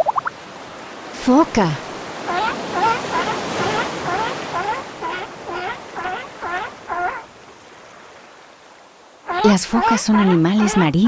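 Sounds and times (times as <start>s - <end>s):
surf washing: 0.0s - 11.0s
seal barking: 1.8s - 7.4s, 9.2s - 11.0s.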